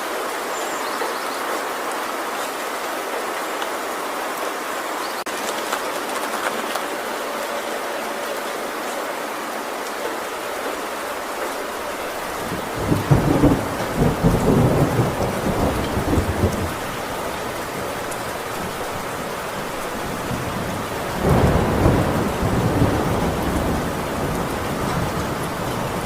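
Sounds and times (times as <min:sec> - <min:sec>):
heavy rain on metal roof: 0:00.0 - 0:26.0
thunder rumbling: 0:11.6 - 0:26.0.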